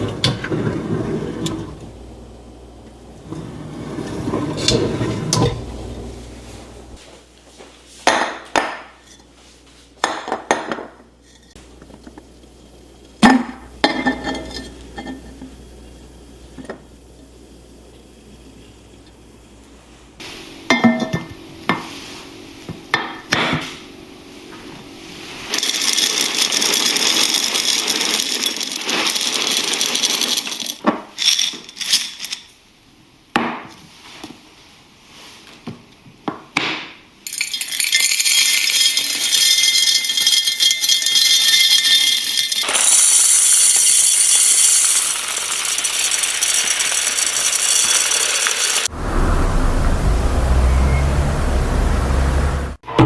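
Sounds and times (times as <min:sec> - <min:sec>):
jars knocking and clinking: 0:25.6 - 0:31.8, 0:37.3 - 0:48.9.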